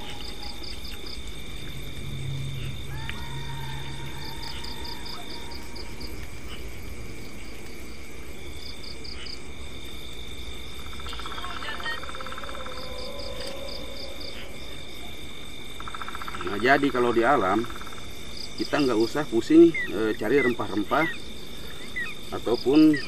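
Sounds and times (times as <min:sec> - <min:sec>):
low buzzing trill: 0:00.0 - 0:07.0
shrill insect tones: 0:00.0 - 0:23.0.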